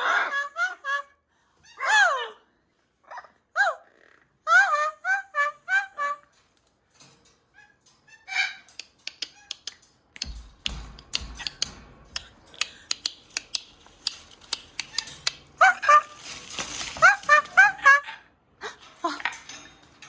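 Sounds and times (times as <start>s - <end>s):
parrots squeaky calls: 7.5s - 9.8s, 13.3s - 18.2s
sharp clicks and taps: 8.7s - 15.4s.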